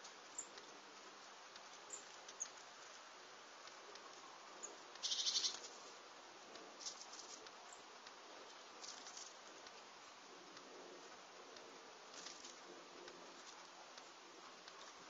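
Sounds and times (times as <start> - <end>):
faint steady hiss: 0.0 - 15.0
high bird peeps: 5.0 - 5.6
rapid high bird chattering: 5.0 - 5.6.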